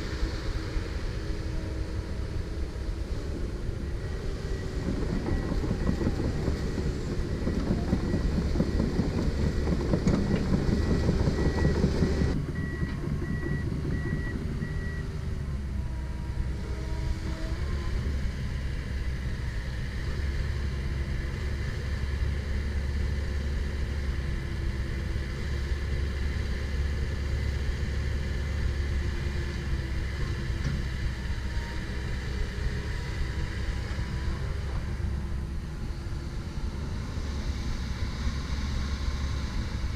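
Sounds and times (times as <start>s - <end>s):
excavator diesel engine and hydraulics: 0.0s - 39.9s.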